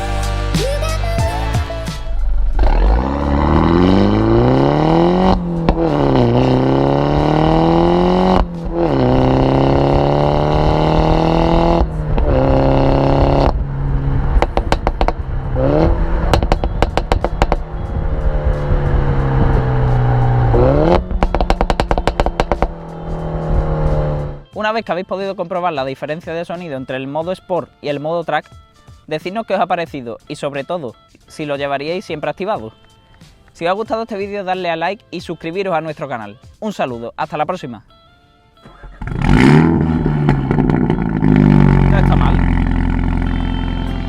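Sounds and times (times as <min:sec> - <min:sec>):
engine rev blip: 0:01.9 - 0:24.5, 0:38.6 - 0:44.0
car engine accelerating through gears: 0:02.2 - 0:24.5, 0:38.9 - 0:44.0
exhaust crackles and pops: 0:02.4 - 0:24.4, 0:38.9 - 0:43.4.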